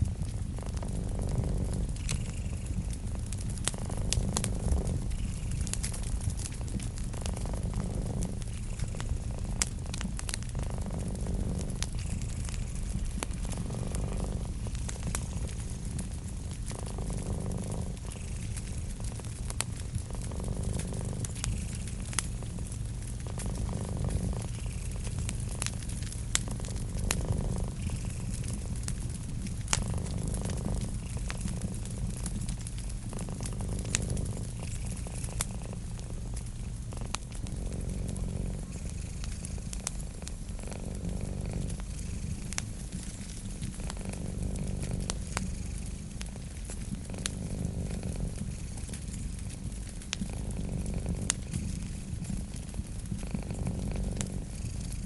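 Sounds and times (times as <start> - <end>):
cat purring: 0.0 - 55.0
wood fire crackling: 0.0 - 55.0.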